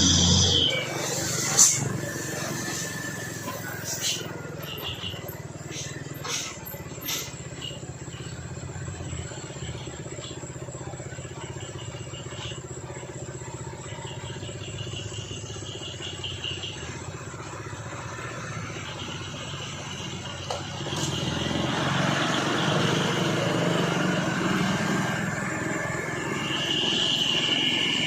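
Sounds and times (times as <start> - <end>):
faint high-pitched shrill: 0.0 - 8.0
diesel truck engine running: 0.0 - 28.0.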